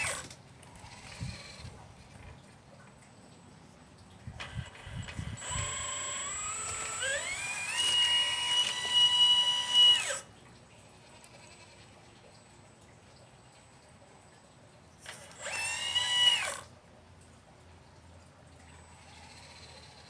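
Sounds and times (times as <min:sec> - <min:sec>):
small electric motor whining: 0:00.0 - 0:01.8, 0:04.4 - 0:10.3, 0:15.0 - 0:16.7, 0:18.8 - 0:20.0.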